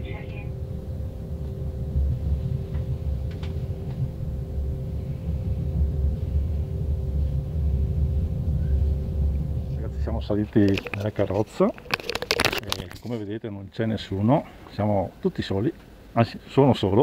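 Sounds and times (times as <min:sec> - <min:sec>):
train rumble with two-note hum: 0:00.0 - 0:12.6.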